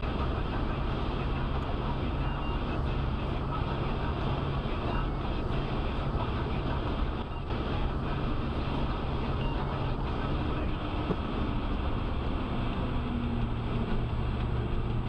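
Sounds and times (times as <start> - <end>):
vehicle road and engine noise: 0.0 - 15.0.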